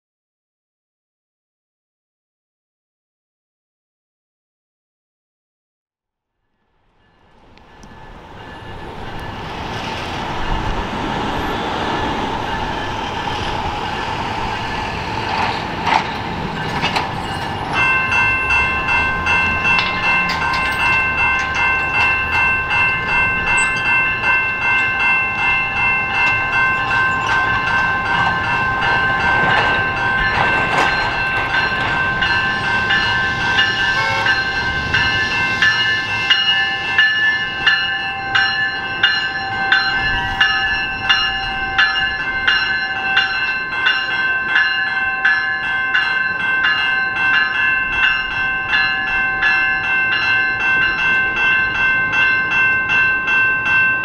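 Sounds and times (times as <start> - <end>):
train rumble: 7.0 - 54.0
ringing warning bell: 16.5 - 54.0.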